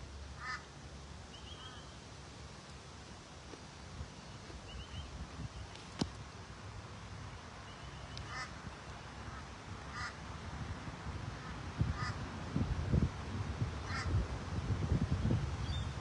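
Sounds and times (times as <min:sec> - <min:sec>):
waterfowl honking: 0:00.4 - 0:00.6, 0:08.3 - 0:08.6, 0:09.3 - 0:10.2, 0:11.4 - 0:12.2, 0:13.9 - 0:14.1.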